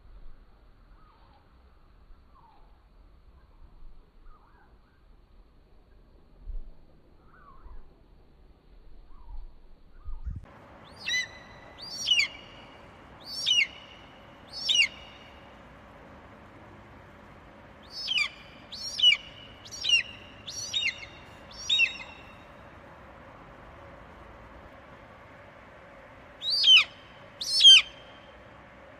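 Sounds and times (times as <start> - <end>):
steady background hiss: 0.0 - 28.9
bird calling in sharp notes: 10.9 - 15.6, 17.8 - 22.6, 26.4 - 28.4.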